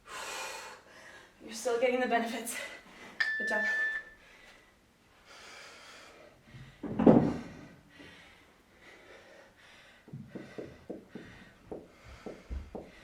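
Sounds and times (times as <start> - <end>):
person breathing heavily: 4.2 - 13.0.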